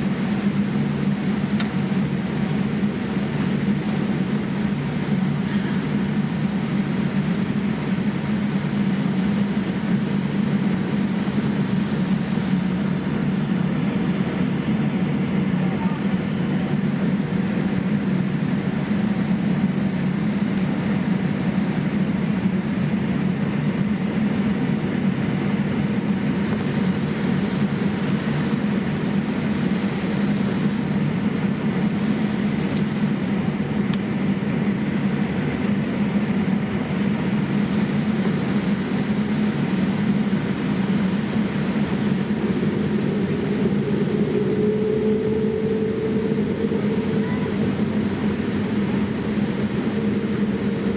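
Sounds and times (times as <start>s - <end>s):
airliner cabin engine rumble: 0.0s - 50.9s
faint rising tone: 42.5s - 47.4s.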